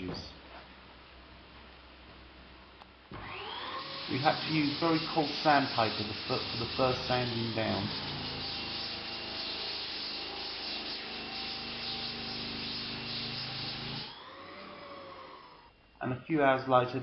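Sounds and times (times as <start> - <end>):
floor sanding machine on wood: 3.2 - 15.7.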